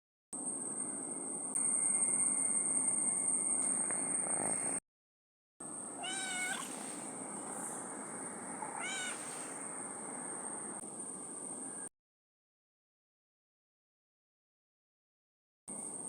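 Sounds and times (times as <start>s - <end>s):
kitten meowing: 6.0s - 7.0s, 8.6s - 9.6s.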